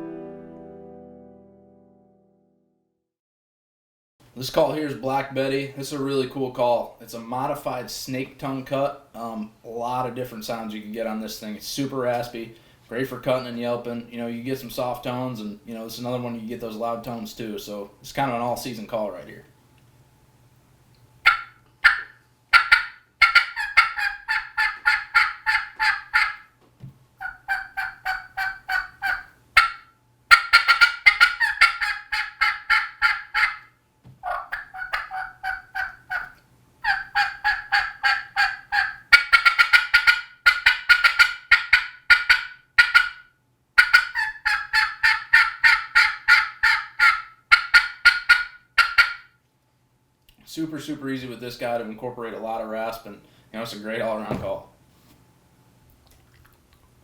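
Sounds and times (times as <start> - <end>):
turkey call raspy yelps: 21.2 - 26.6, 27.2 - 49.4.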